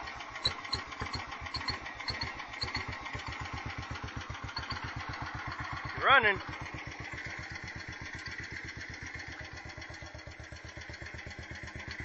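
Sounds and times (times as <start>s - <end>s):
garden tractor engine chugging: 0.0s - 12.0s
light ticking: 0.4s - 3.4s.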